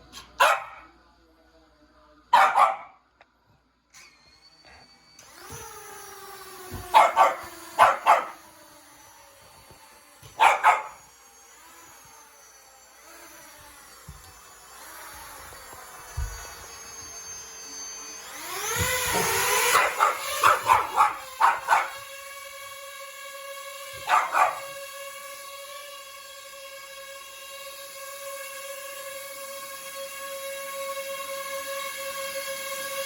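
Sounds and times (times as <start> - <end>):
dog barking: 0.2 - 0.9, 2.3 - 3.0, 6.9 - 8.4, 10.4 - 11.0, 19.7 - 22.0, 24.0 - 24.8
drone motors whining: 3.8 - 33.0.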